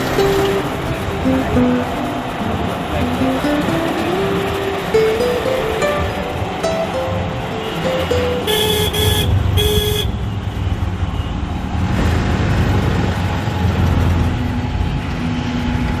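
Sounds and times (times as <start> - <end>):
road traffic rumble: 0.0 - 16.0
vehicle horn honking: 7.1 - 10.4.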